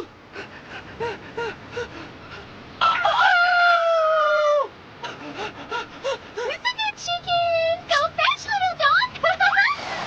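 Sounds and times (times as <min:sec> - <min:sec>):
long rooster crow: 0:02.8 - 0:04.7.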